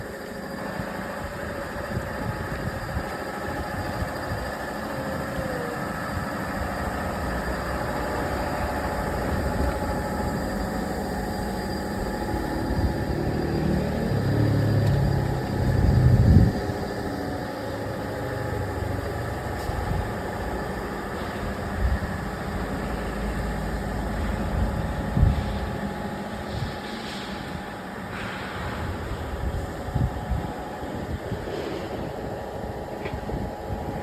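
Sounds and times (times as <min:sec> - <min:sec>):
motor running: 0:00.0 - 0:27.5.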